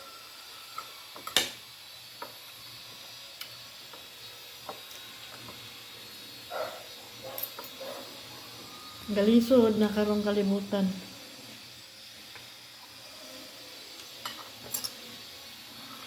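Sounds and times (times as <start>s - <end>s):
utensils clicking on a plate: 7.3s - 7.9s, 14.0s - 15.0s.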